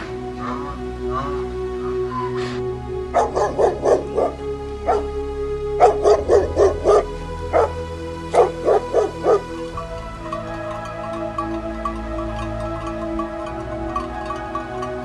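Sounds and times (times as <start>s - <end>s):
background music: 0.0s - 15.0s
dog barking: 3.2s - 5.0s, 5.8s - 7.7s, 8.4s - 9.4s.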